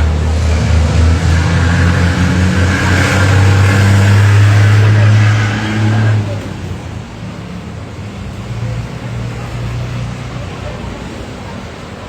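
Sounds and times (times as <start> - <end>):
aircraft engine drone: 0.0 - 7.9.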